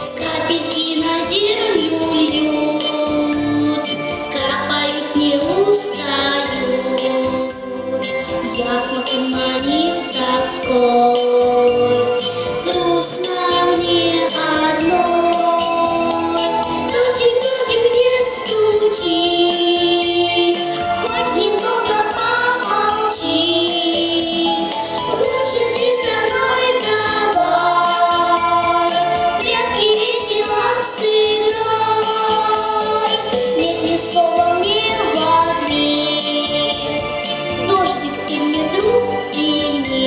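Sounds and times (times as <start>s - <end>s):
backing music with steady beat: 0.0s - 40.0s
person singing: 8.4s - 36.8s.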